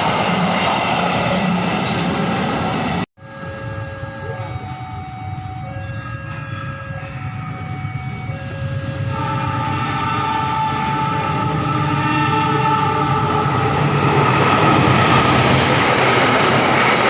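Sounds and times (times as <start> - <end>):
train low rumble: 0.0 - 17.0
two-pitch warning tones: 2.5 - 17.0
continuous horn-like tone: 3.2 - 15.5.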